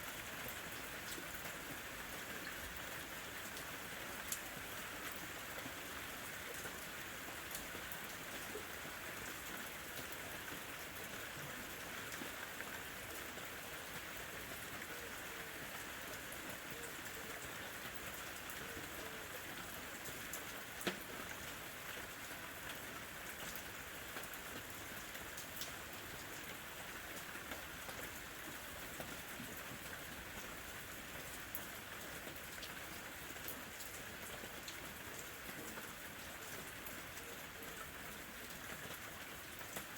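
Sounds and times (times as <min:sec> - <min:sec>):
light rain pattering: 0:00.0 - 0:39.9.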